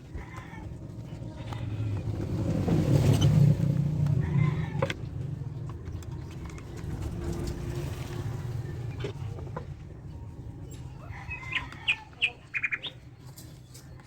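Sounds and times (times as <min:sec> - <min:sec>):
vehicle passing by: 0:00.0 - 0:10.6.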